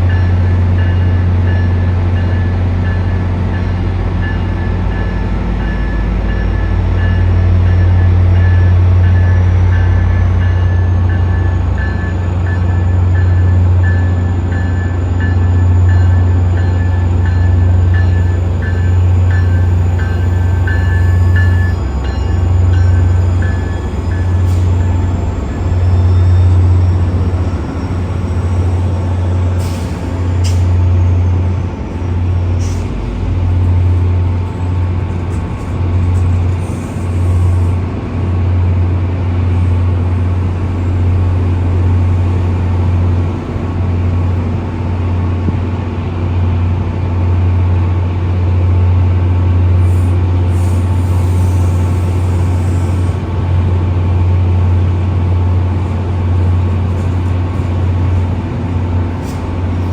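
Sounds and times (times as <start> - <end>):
air brake hiss: 29.6 - 30.8, 32.6 - 33.0, 49.8 - 53.2.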